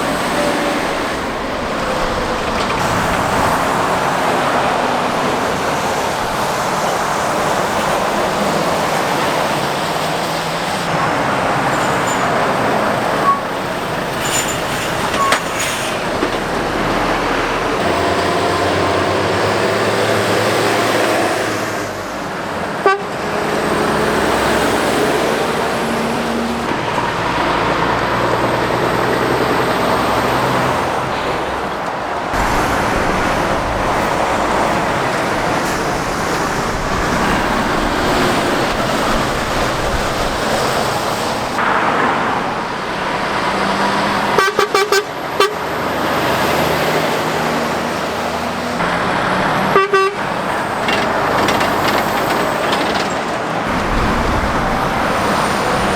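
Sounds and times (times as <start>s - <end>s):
heavy road traffic passing: 0.0s - 55.9s
rattling sharp hits: 11.7s - 17.8s, 48.8s - 55.9s.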